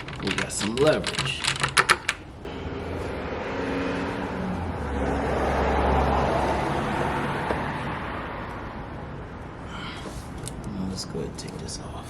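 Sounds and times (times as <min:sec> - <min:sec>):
motor vehicle passing by: 0:02.5 - 0:09.4.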